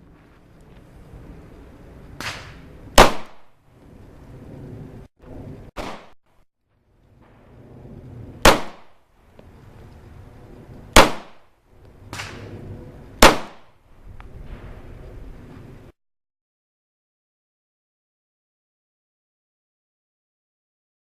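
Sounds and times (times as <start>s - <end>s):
pistol shots: 2.2s - 3.5s, 5.8s - 6.2s, 8.4s - 9.0s, 11.0s - 11.5s, 13.2s - 13.7s.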